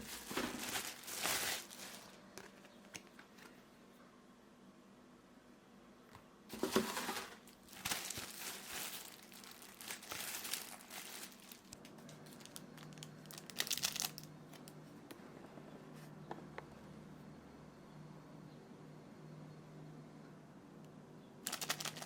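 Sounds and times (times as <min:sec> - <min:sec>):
plastic packaging crinkling: 0:00.0 - 0:03.2, 0:06.5 - 0:14.8, 0:21.4 - 0:22.0.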